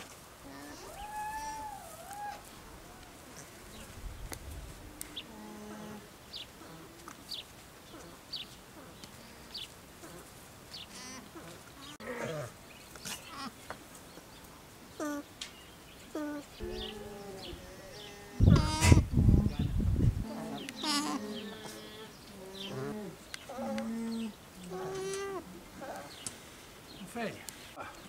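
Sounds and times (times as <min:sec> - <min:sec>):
bird chirping: 0:14.1 - 0:18.8, 0:20.4 - 0:28.0.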